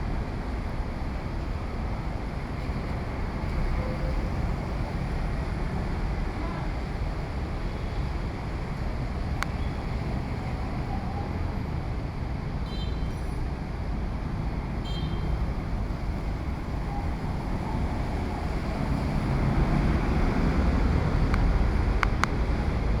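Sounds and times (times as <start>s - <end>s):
street traffic noise: 0.0s - 23.0s
wind rumble on microphone: 13.4s - 23.0s.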